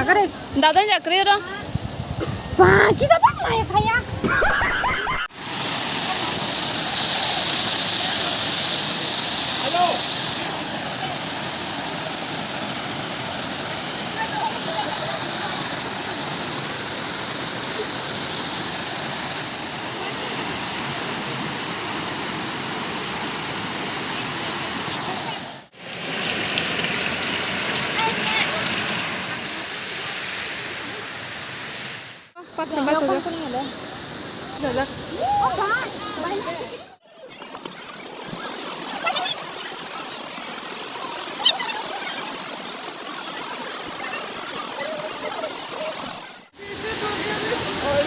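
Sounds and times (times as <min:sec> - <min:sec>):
waterfall rushing: 0:34.8 - 0:48.0.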